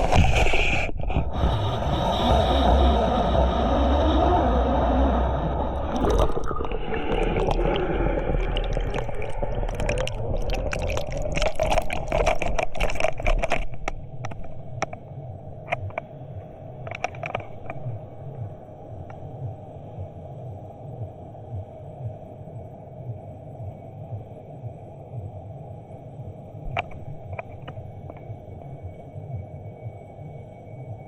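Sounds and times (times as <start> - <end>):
underwater gurgling and bubbling: 0.0 - 15.0, 26.7 - 28.8
low underwater hum: 0.0 - 31.0.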